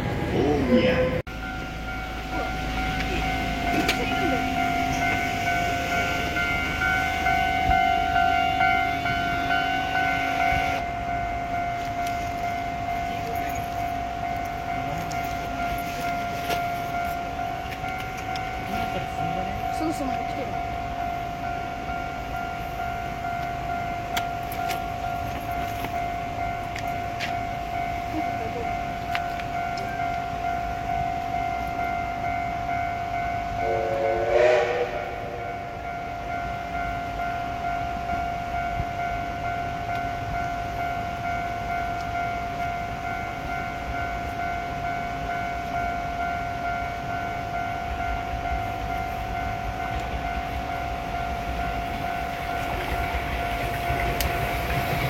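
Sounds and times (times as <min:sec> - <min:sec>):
train running: 0:00.0 - 0:55.0
train horn blast: 0:03.7 - 0:10.8, 0:33.6 - 0:35.6.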